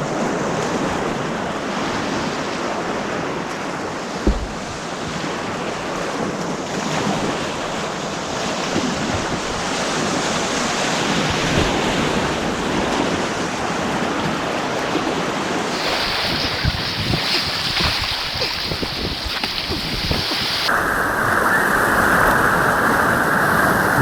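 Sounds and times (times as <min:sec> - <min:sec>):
wind on microphone: 0:00.0 - 0:24.0
white-water rapids rushing: 0:15.6 - 0:24.0.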